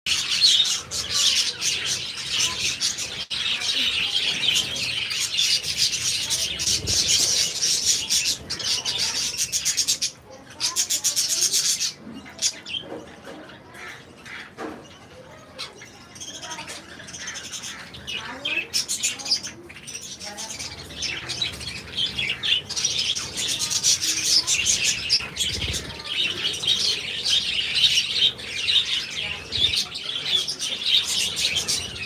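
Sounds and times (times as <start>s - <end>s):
budgerigars chirping: 15.2s - 32.0s.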